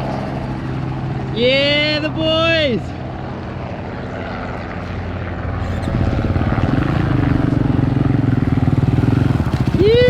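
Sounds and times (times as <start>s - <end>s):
engine low pulsing: 3.0s - 10.0s.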